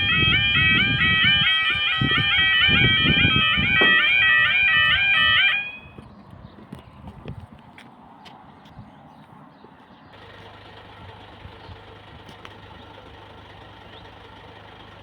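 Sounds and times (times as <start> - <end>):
level crossing warning alarm: 0.0 - 6.0.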